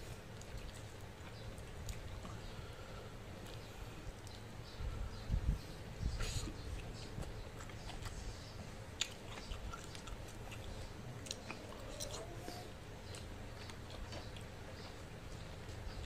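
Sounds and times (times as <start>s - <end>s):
wet chewing and mouth clicks: 0.0s - 5.3s, 6.0s - 16.0s.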